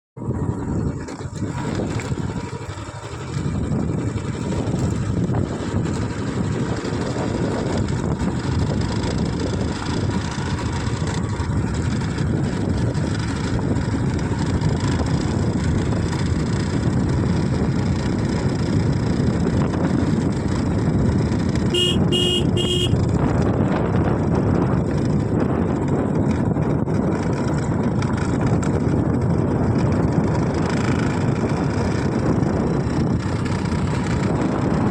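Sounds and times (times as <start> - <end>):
moving vehicle rumble: 0.2 - 34.9
car horn beeps: 21.7 - 23.0.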